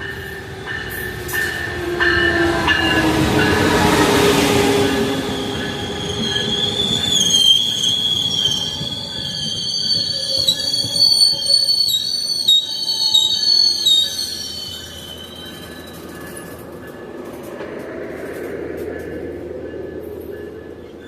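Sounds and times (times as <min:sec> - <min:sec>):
train rumbling by: 0:00.0 - 0:21.0
train wheels squealing on rails: 0:00.0 - 0:21.0.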